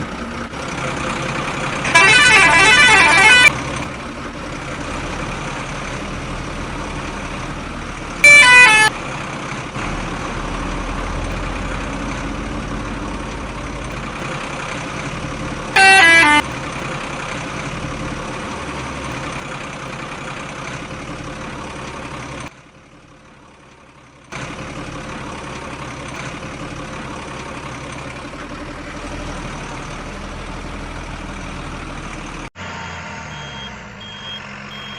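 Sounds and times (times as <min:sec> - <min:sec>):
steady engine drone: 0:00.0 - 0:34.9
vehicle horn honking: 0:01.9 - 0:03.5, 0:08.2 - 0:09.0, 0:15.7 - 0:16.5, 0:32.6 - 0:34.9.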